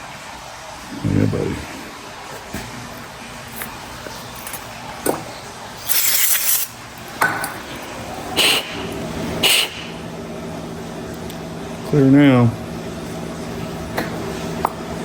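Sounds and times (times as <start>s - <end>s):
hissing air blasts: 8.4s - 10.0s.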